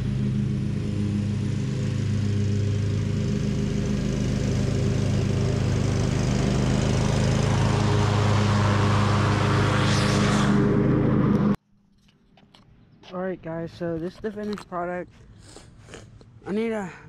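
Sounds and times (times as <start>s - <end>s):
riding lawn mower running: 0.0s - 11.6s.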